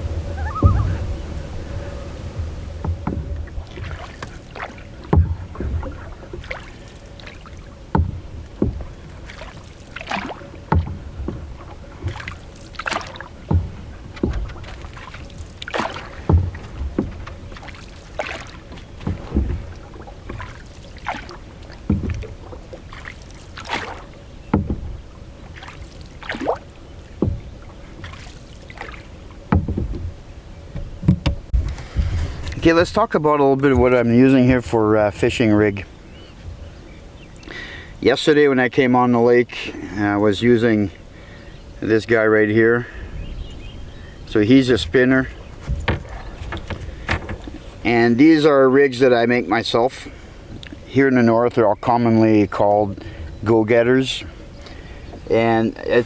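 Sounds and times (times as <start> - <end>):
water splash and drip: 0.0 - 34.7, 44.0 - 48.3, 49.7 - 51.0
paddle strokes in water: 0.0 - 56.0.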